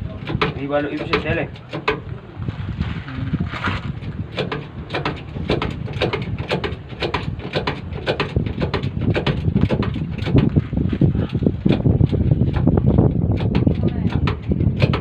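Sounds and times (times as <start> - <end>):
low rumble: 0.0 - 15.0
hammer striking tyre rim: 0.2 - 2.1.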